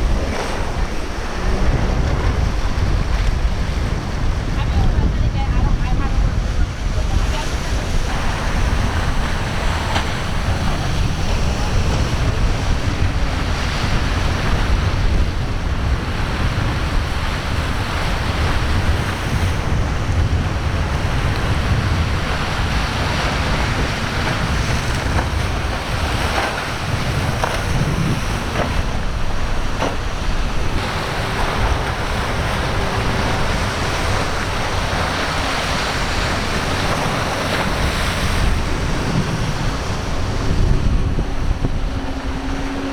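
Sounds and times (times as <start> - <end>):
waves breaking: 0.0 - 42.9
wind buffeting microphone: 0.0 - 42.9.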